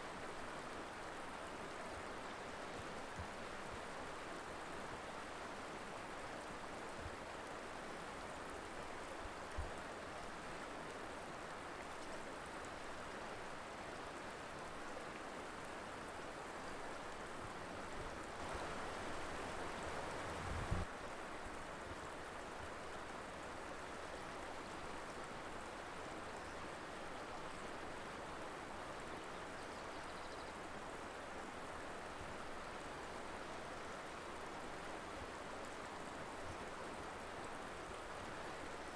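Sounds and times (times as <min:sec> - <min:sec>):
river water rushing: 0:18.3 - 0:20.4.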